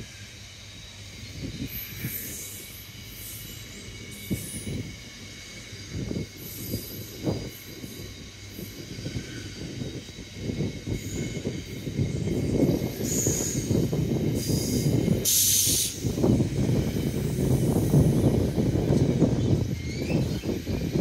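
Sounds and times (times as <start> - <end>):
train wheels rumbling on rail: 0.0 - 21.0
high-pitched wheel squeal: 19.2 - 21.0.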